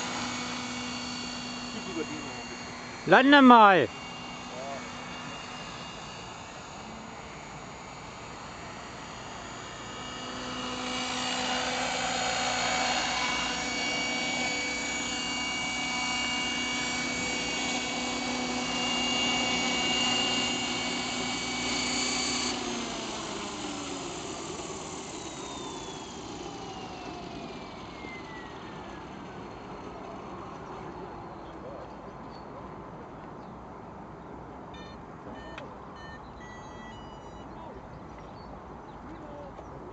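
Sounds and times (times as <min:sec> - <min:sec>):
model helicopter rotor whining: 0:00.0 - 0:31.5.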